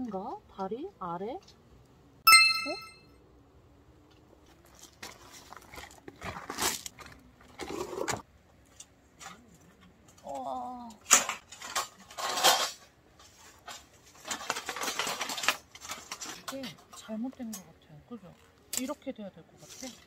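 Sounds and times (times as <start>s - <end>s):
gear rustling and scraping: 4.2s - 10.5s, 11.1s - 19.0s, 19.6s - 20.0s.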